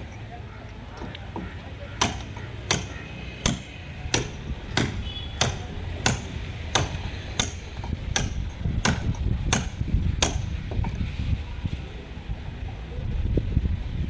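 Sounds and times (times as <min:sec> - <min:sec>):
hammer blows: 0:01.3 - 0:11.0.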